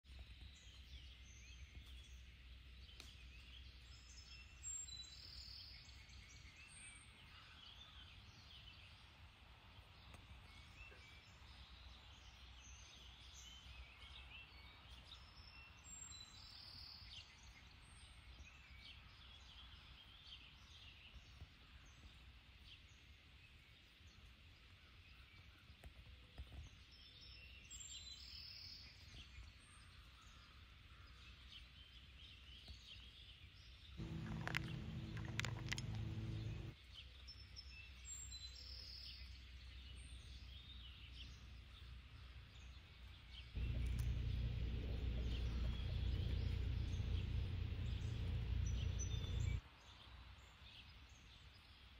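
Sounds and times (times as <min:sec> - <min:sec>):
distant birds chirping: 0:34.0 - 0:36.8, 0:41.2 - 0:49.6
low steady hum: 0:34.0 - 0:36.8, 0:42.2 - 0:49.6.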